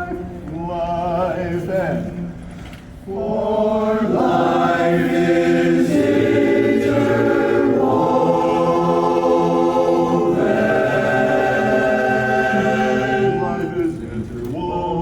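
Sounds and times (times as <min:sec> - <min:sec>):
a cappella chorus singing chords: 0:00.0 - 0:02.2, 0:03.1 - 0:15.0.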